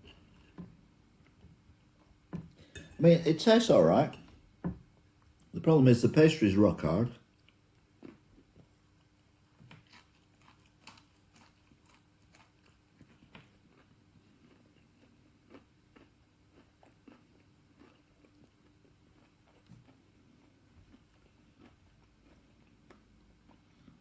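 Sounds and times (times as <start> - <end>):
chewing crunchy pastry: 7.2 - 24.0.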